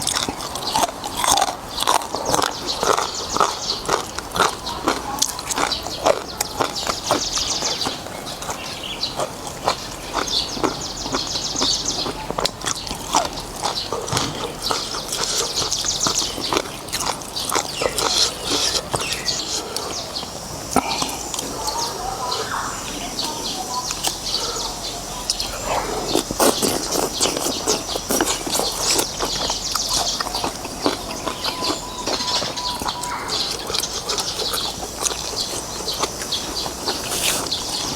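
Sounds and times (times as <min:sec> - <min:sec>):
wet chewing: 0:00.0 - 0:37.9
lip smacks: 0:12.0 - 0:21.9, 0:25.3 - 0:37.9
slurping noodles: 0:25.4 - 0:31.7, 0:32.6 - 0:37.9.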